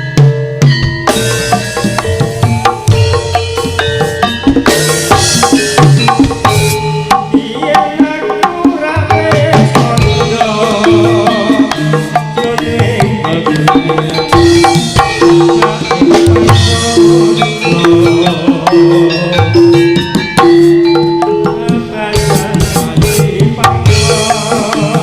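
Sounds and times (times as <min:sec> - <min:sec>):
tuned struck percussion: 0:00.0 - 0:08.0
hand drums beating: 0:00.0 - 0:25.0.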